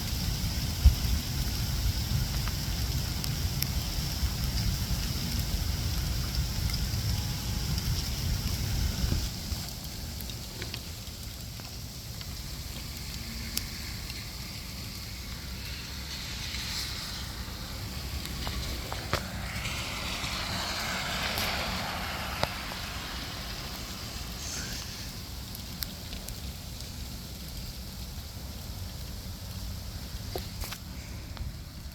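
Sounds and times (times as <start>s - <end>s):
broad hiss: 0.0s - 31.9s
freezing rain falling: 0.0s - 31.9s
low rumble: 12.2s - 26.6s.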